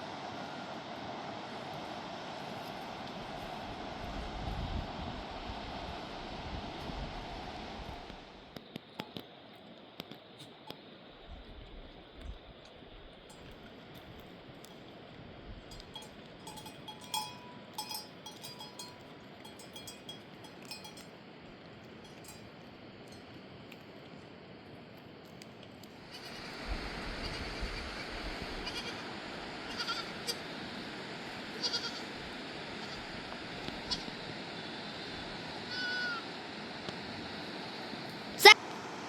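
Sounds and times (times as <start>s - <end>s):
livestock bleating: 28.6s - 29.0s, 29.7s - 30.4s, 31.6s - 32.1s, 35.7s - 36.2s.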